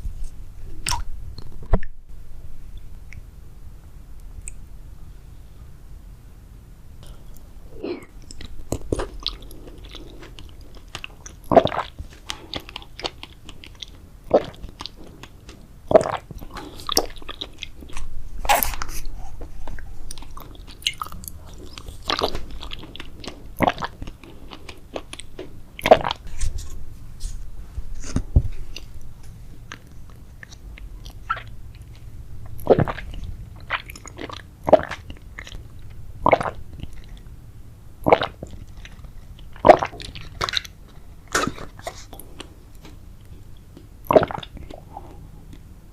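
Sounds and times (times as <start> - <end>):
jelly being bitten and chewed: 7.0 - 26.7, 28.0 - 37.4, 38.0 - 45.7.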